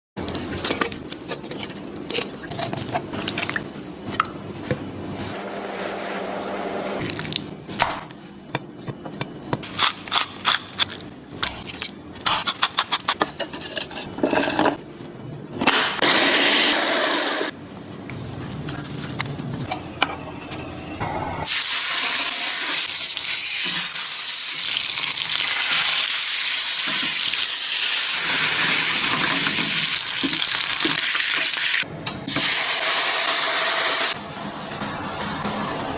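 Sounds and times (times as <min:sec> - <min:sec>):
food sizzling in a pan: 0:21.5 - 0:31.8.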